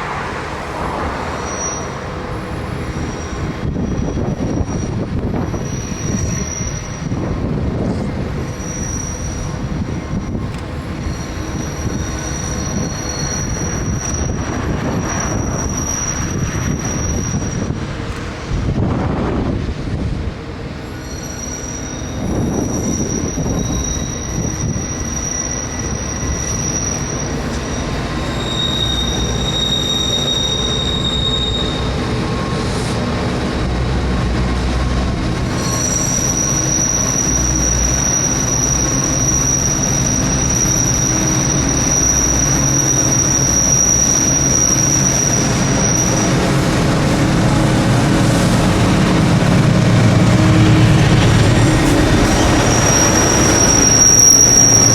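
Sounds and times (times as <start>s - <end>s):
diesel locomotive rumble: 0.0s - 54.9s
train wheel flange squeals: 0.4s - 18.8s, 20.5s - 54.9s.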